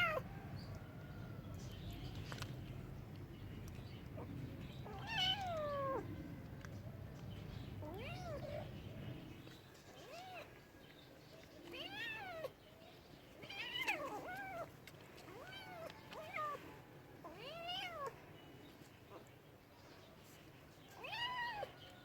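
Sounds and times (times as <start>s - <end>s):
cat meowing: 4.8s - 6.1s, 7.8s - 8.7s, 17.2s - 18.2s, 21.0s - 22.0s.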